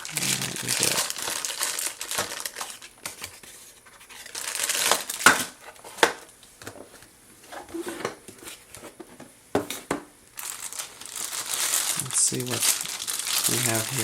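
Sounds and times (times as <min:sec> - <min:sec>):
packaging crinkling and tearing: 0:00.0 - 0:06.3, 0:10.4 - 0:14.0.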